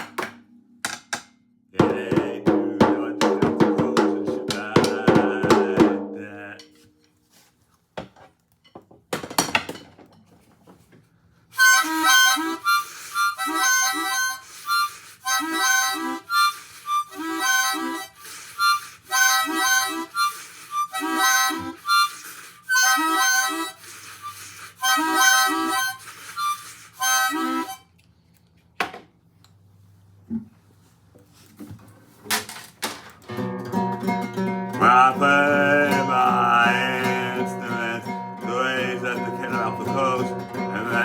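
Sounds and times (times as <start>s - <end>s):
harmonica chord phrases: 11.6s - 27.8s, 33.4s - 41.0s.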